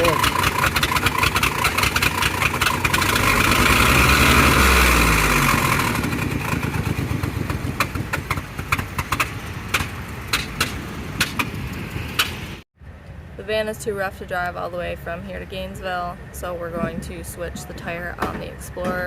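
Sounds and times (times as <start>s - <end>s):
sharp irregular engine ticks: 0.0s - 12.6s
van engine revving and idling: 0.0s - 12.6s.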